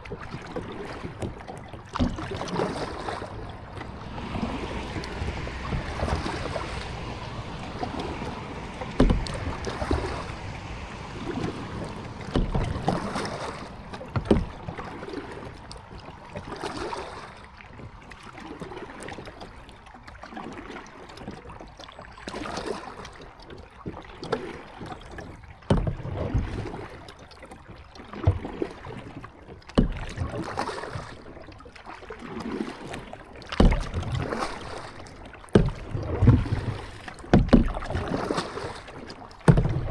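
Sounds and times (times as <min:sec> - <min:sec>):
paddle splashing in water: 0:00.0 - 0:39.9.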